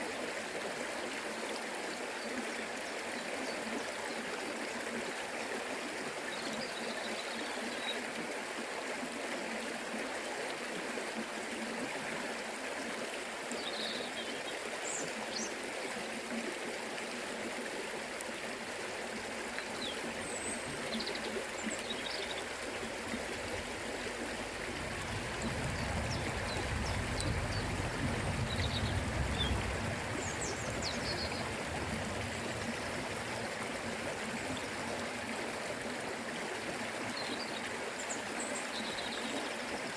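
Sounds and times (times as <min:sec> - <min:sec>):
river water rushing: 0:14.0 - 0:39.9
low rumble: 0:24.5 - 0:32.8.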